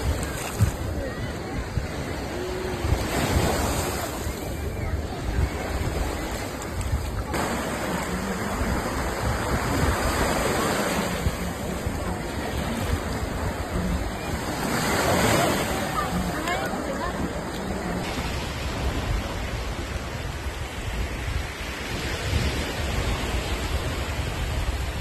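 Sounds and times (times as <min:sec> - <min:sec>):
sea waves breaking on beach: 0:00.0 - 0:25.0
wind rumbling on microphone: 0:00.0 - 0:25.0.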